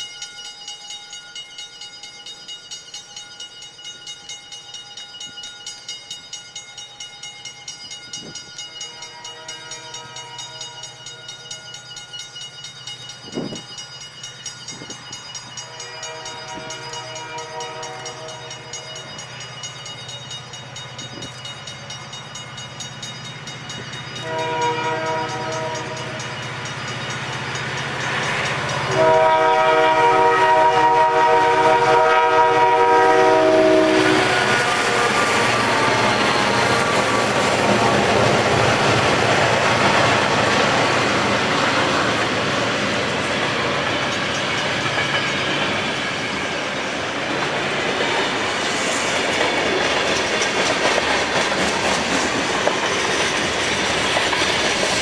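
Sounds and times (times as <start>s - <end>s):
locomotive air horn blasts: 9.1s - 10.7s, 15.7s - 18.6s, 24.2s - 26.2s, 28.9s - 34.6s
freight cars rumbling on rails: 14.6s - 55.0s.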